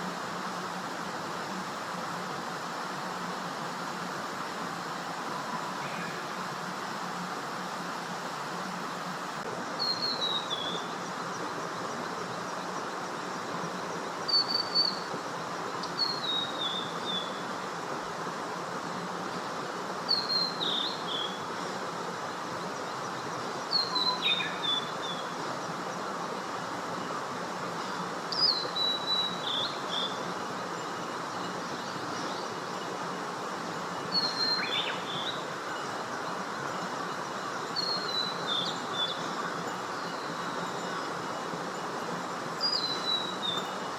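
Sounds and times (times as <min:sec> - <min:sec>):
steady hiss: 0:00.0 - 0:43.9
songbird whistled song: 0:09.8 - 0:10.9, 0:14.2 - 0:15.1, 0:15.8 - 0:17.5, 0:20.1 - 0:21.5, 0:23.6 - 0:25.7, 0:27.8 - 0:32.6, 0:34.0 - 0:36.0, 0:37.6 - 0:41.4, 0:42.6 - 0:43.9.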